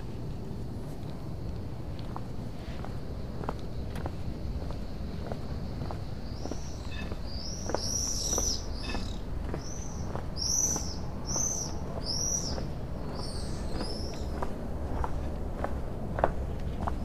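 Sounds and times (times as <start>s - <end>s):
soft footsteps: 0.0s - 17.0s
small bird calling: 5.2s - 14.5s.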